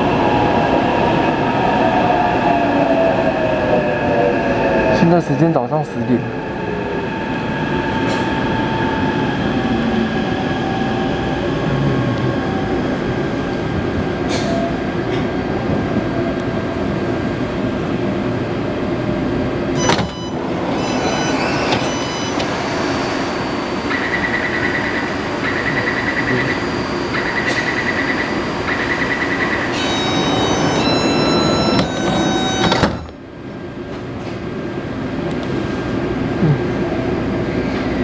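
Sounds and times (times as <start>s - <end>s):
train equipment and ventilation hum: 0.0s - 38.0s
short repeated beeps: 19.8s - 22.4s, 29.8s - 33.1s
door chime: 19.8s - 22.5s, 29.8s - 33.2s.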